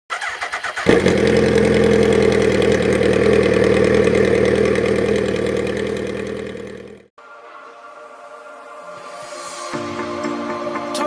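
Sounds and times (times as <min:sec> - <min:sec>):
motorcycle engine cranking: 0:00.1 - 0:07.1
motorcycle engine running: 0:00.1 - 0:07.1.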